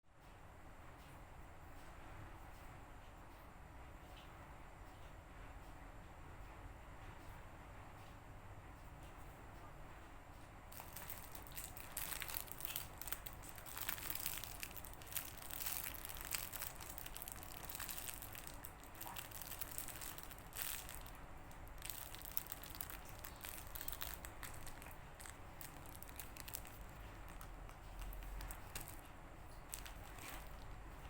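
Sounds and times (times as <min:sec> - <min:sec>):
foam toys crackling and crinkling: 0:10.7 - 0:31.0.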